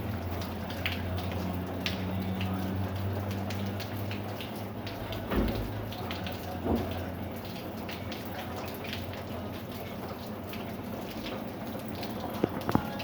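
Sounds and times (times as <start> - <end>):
rain pattering: 0.0 - 13.0.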